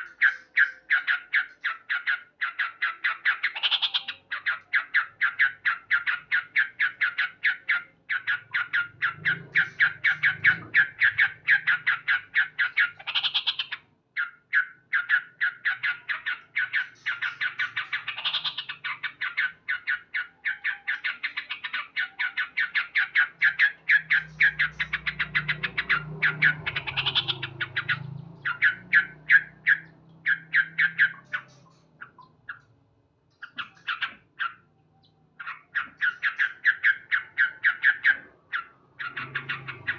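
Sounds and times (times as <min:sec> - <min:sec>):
bird calling sharp repeated notes: 0:00.0 - 0:39.9.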